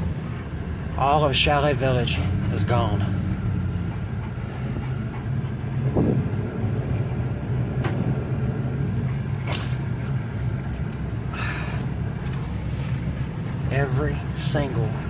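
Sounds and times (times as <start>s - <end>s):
truck engine and tyres rumbling: 0.0s - 15.0s.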